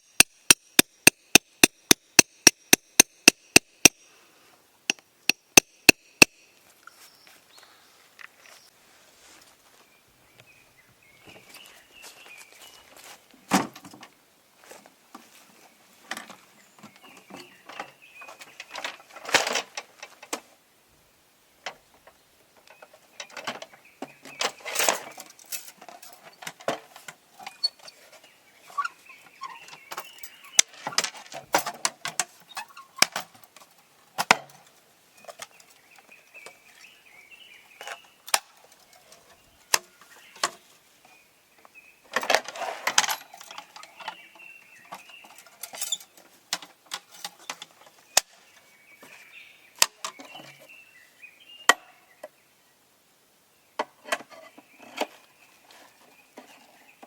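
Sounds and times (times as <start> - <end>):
clicks clinks and knocks: 42.1 - 44.2.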